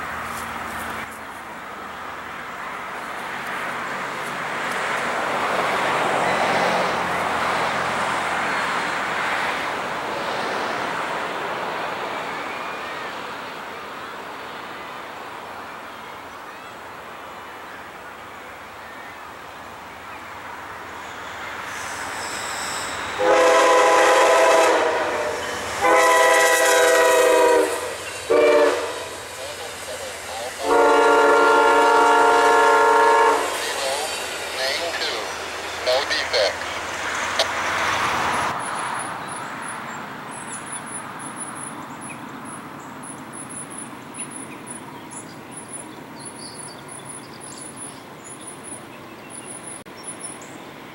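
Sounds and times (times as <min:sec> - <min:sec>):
vehicle passing: 0:00.0 - 0:12.4, 0:23.6 - 0:43.1
train rumbling: 0:00.0 - 0:50.9
locomotive air horn blasts: 0:22.3 - 0:29.3, 0:30.6 - 0:33.7.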